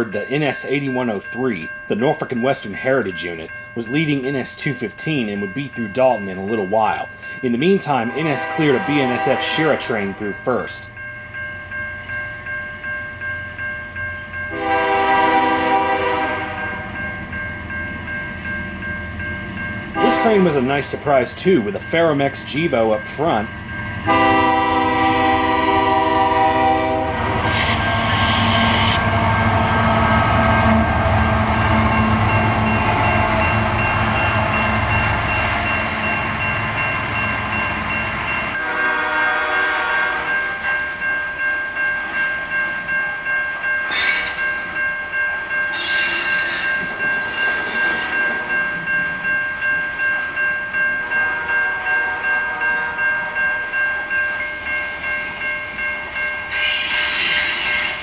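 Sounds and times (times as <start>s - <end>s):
diesel locomotive rumbling: 0.0s - 42.2s
train horn: 8.0s - 10.1s, 14.5s - 16.9s, 20.0s - 20.6s, 24.0s - 33.5s, 38.6s - 40.5s
wheel squeals: 45.8s - 48.2s.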